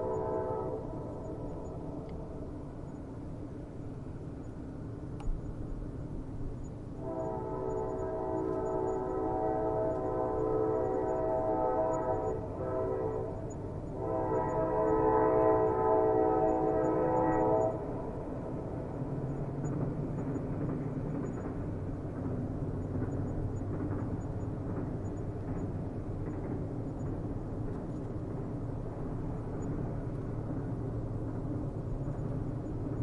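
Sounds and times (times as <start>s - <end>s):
train horn blasts: 0.0s - 1.4s, 7.0s - 18.0s
passing train rumble: 0.0s - 33.0s.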